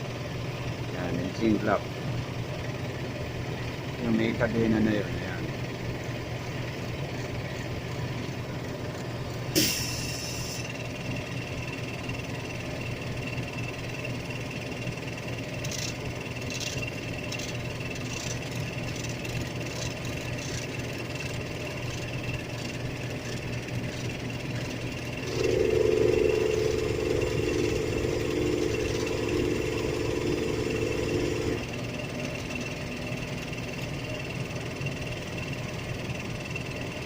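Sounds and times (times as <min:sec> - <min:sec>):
engine running: 0:00.0 - 0:37.0
hiss: 0:09.5 - 0:10.8.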